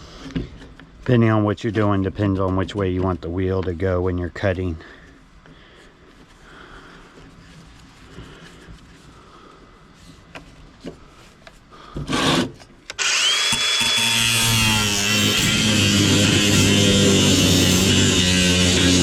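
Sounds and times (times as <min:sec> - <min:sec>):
angle grinder whining: 0:12.1 - 0:19.0.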